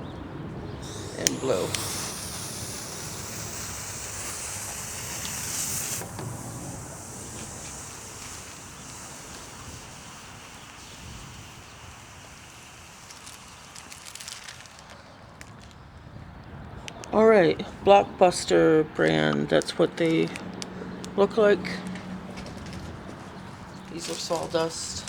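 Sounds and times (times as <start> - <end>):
smoke ball hissing: 0.7 - 15.1, 23.3 - 25.0
wind rumble on microphone: 5.4 - 12.7, 15.4 - 19.5.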